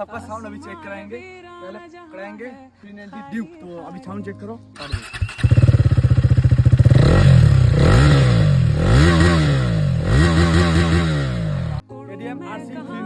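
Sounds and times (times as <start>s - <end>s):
motorcycle engine starting and revving: 4.8s - 11.8s.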